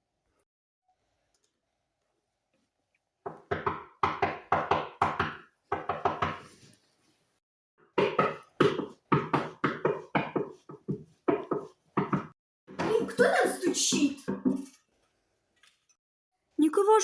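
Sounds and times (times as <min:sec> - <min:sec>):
knocking on a window: 0:03.3 - 0:06.5, 0:07.9 - 0:13.2, 0:13.9 - 0:14.6.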